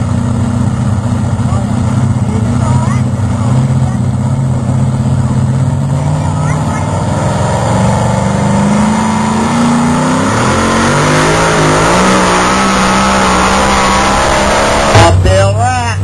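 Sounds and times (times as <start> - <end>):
truck engine under load: 0.0 - 16.0.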